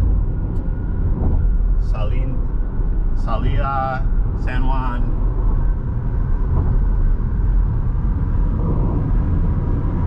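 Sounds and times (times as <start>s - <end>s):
vehicle rumbling in motion: 0.0s - 10.0s.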